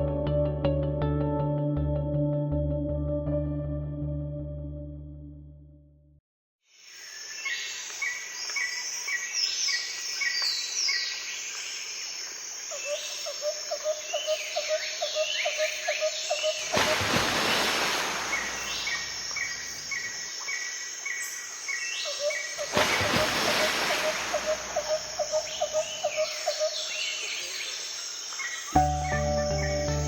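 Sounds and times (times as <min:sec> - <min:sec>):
birds chirping: 0:14.1 - 0:20.6, 0:21.2 - 0:30.0
low repeating bird call: 0:23.0 - 0:26.8.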